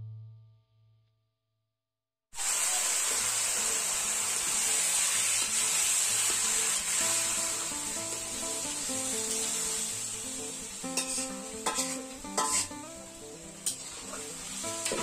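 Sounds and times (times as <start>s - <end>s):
potatoes sizzling in oil: 2.4s - 15.0s
faint guitar music: 3.2s - 15.0s
spatula stirring: 11.0s - 12.8s.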